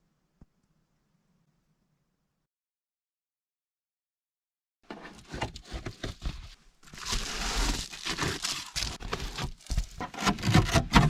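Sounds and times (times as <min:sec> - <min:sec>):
rustling and crinkling handling noise: 0:04.9 - 0:11.0.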